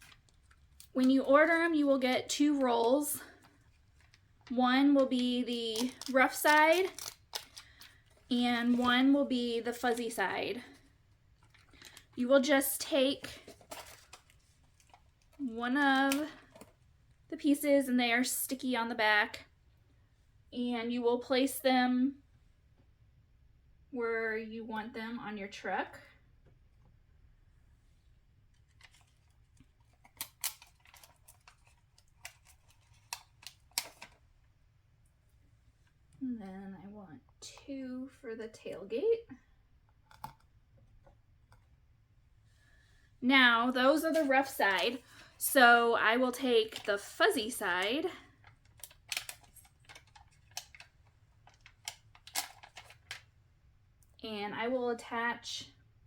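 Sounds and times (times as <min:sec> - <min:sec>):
velcro dots peeling and snapping: 0:05.5 - 0:07.9, 0:29.8 - 0:34.2, 0:48.4 - 0:53.3
velcro dot peeling: 0:05.7 - 0:07.8.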